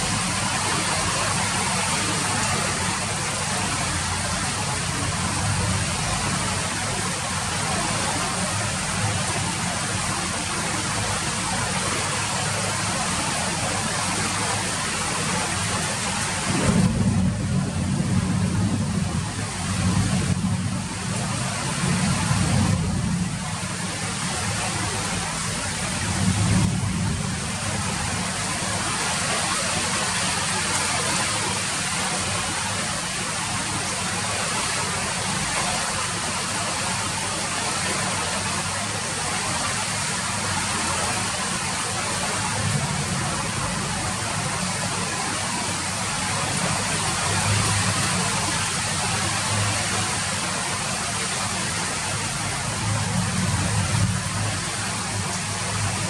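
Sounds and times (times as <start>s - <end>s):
rain falling: 0.0s - 56.0s
low rumble: 16.2s - 23.6s.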